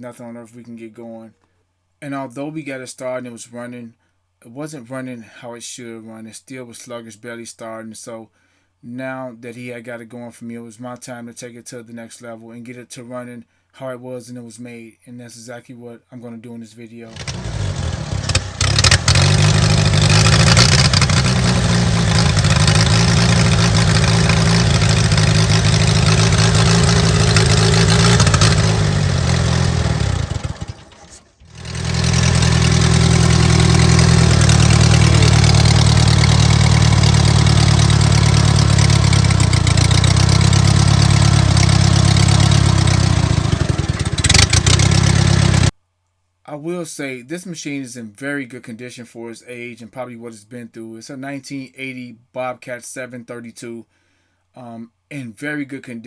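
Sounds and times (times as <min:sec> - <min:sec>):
loud engine with open exhaust: 0:17.1 - 0:45.7.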